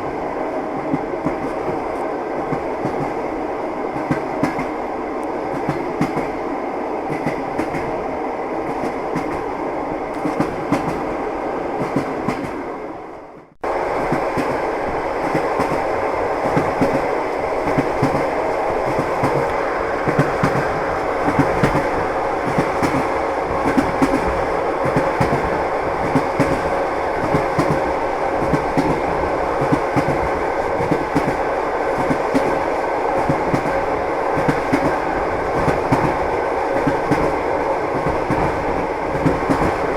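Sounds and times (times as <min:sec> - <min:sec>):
train wheels clattering over rails: 0:10.1 - 0:11.1, 0:13.9 - 0:39.9.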